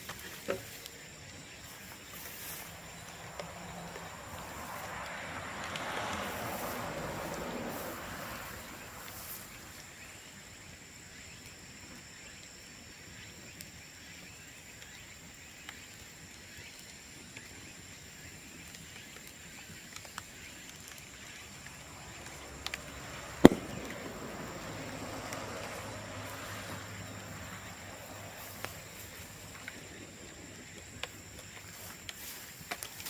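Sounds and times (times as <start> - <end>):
bonfire crackling: 0.0 - 33.0
bamboo bursting pop: 20.0 - 26.8.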